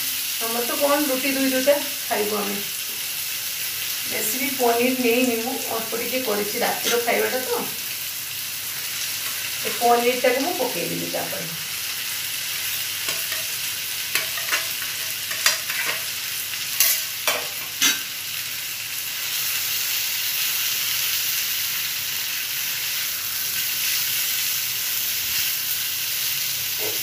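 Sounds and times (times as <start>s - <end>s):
food sizzling in a frying pan: 0.0s - 27.0s.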